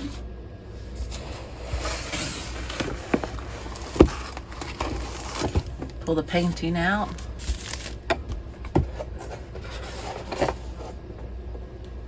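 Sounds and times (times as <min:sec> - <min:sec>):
packaging rustling: 0:01.8 - 0:05.9, 0:07.2 - 0:08.1.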